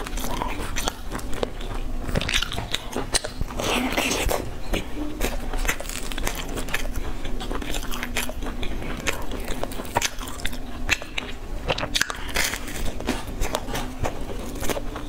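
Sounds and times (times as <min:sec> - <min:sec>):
chewing with crunches: 0:00.0 - 0:15.0.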